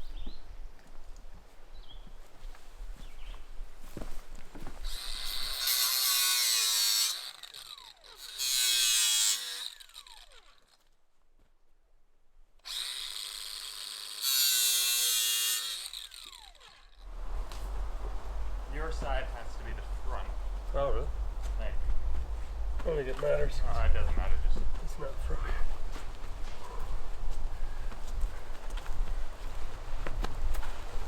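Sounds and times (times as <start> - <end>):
power tool motor whining: 4.8 - 10.8, 12.7 - 17.1.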